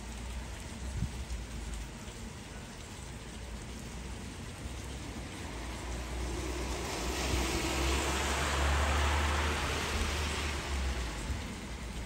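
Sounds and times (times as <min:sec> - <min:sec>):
rain falling: 0:00.0 - 0:12.0
low rumble: 0:04.8 - 0:10.2.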